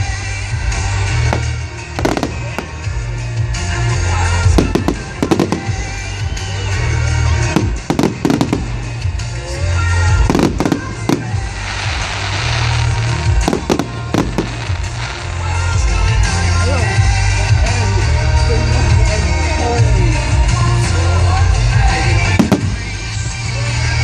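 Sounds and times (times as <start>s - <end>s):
fireworks crackling: 0.0s - 24.0s
loud music with heavy bass: 0.0s - 24.0s
fireworks bangs: 0.7s - 9.4s, 10.0s - 16.4s, 22.0s - 23.9s.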